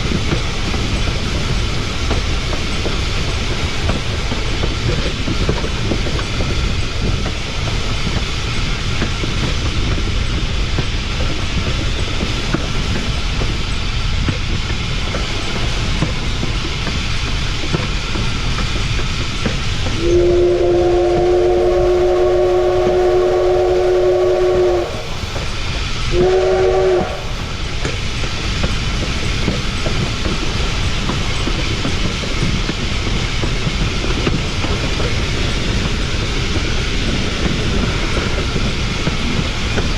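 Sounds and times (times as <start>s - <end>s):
wheels clicking over rail joints: 0.0s - 20.3s, 25.2s - 39.9s
steam locomotive rolling: 0.0s - 39.9s
steam whistle blasts: 20.0s - 27.5s.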